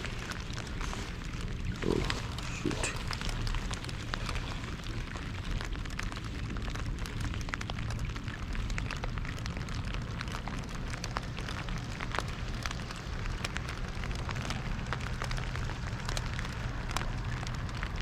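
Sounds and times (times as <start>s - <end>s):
steady low hum: 0.0s - 7.4s
rain falling: 0.0s - 18.0s.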